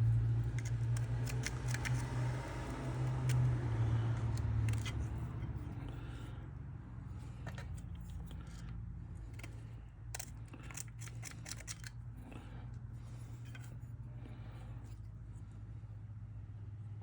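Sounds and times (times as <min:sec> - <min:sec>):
small metal clicks and snips: 0:00.0 - 0:05.8, 0:07.2 - 0:12.0
steady low hum: 0:00.0 - 0:17.0.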